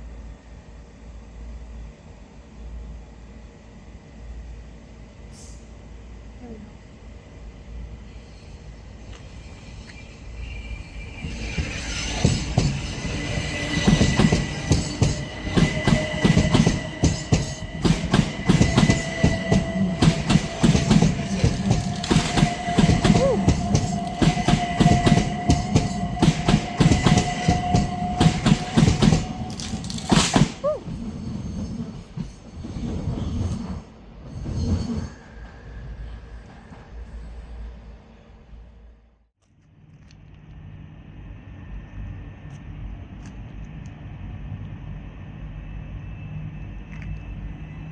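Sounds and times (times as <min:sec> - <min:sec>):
train high whine: 0:00.0 - 0:47.9
train wheels clicking over rail joints: 0:11.5 - 0:30.7.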